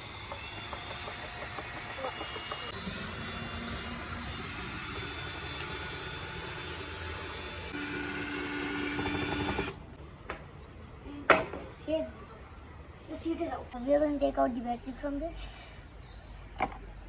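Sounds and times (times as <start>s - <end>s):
mechanical whirring: 0.0s - 9.9s.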